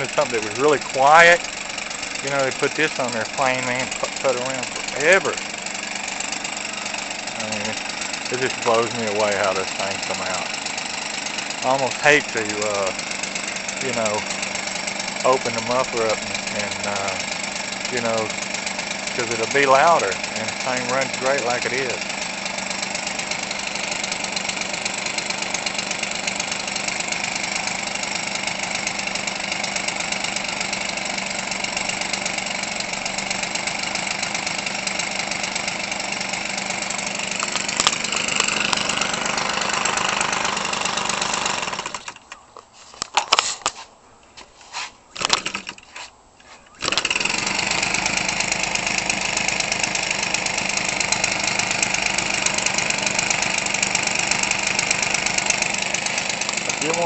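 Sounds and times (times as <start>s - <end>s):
small two-stroke engine running: 0.0s - 42.4s, 45.2s - 46.1s, 46.7s - 57.0s
short engine pops: 37.3s - 40.7s, 45.2s - 45.8s, 46.8s - 47.4s.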